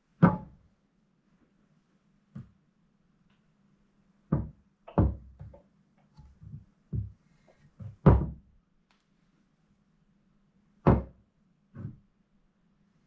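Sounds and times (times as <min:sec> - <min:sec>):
irregular knocks and clunks: 0:04.3 - 0:07.2, 0:07.8 - 0:08.5, 0:11.8 - 0:12.1.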